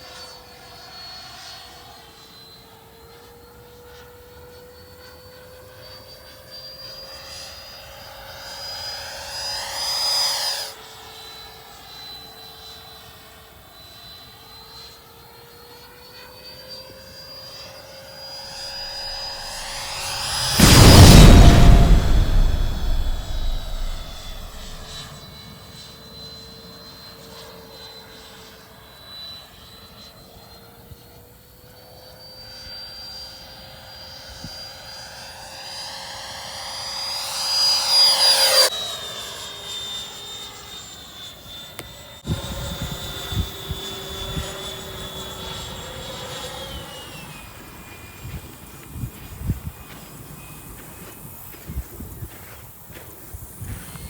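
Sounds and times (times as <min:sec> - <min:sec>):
model jet fan whine: 0:35.2 - 0:50.8.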